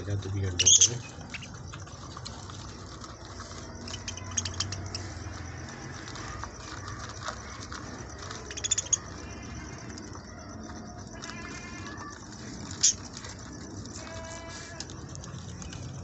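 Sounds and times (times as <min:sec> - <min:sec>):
budgerigars chirping: 0:04.0 - 0:05.1, 0:08.5 - 0:09.0.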